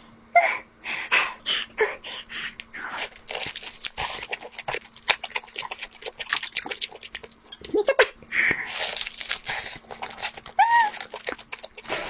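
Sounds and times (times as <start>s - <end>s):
person chewing crisp food: 2.5s - 7.8s, 8.5s - 12.0s.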